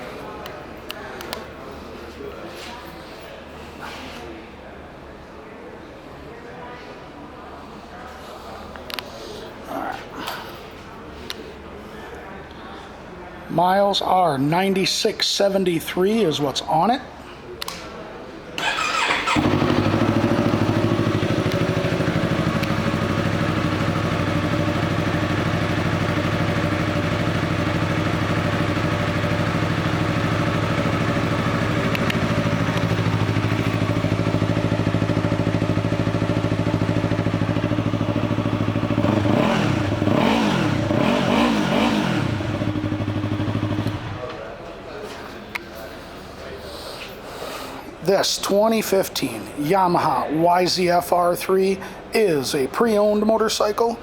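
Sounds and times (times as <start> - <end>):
motorcycle engine idling and revving: 18.6 - 44.3
motorcycle engine starting: 18.6 - 44.4.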